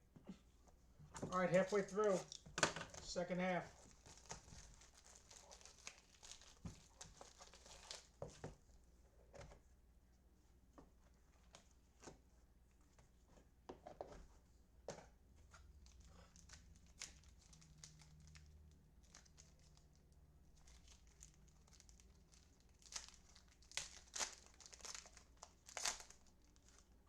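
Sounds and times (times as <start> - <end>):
wrappers crinkling and tearing: 1.3 - 8.2, 15.7 - 26.9.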